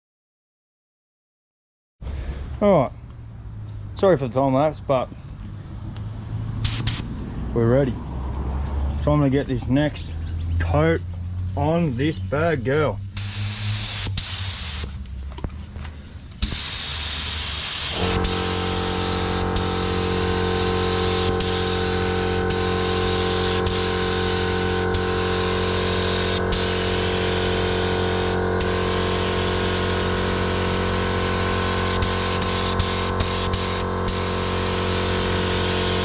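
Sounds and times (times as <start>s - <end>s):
air compressor humming: 2.0s - 36.0s
air spray gun hissing: 16.4s - 36.0s.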